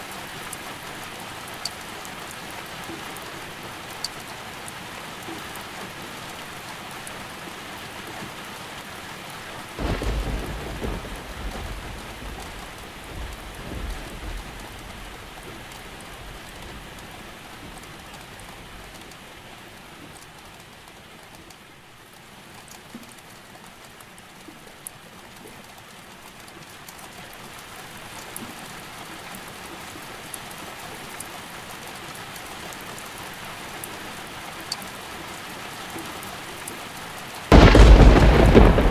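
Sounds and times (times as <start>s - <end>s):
steady rain falling: 0.0s - 38.9s
thunder rumble: 9.8s - 17.0s, 37.5s - 38.9s.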